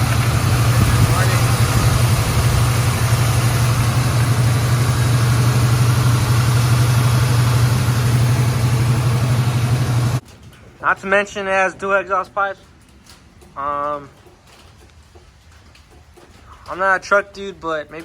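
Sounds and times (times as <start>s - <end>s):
pickup engine idling: 0.0s - 10.2s.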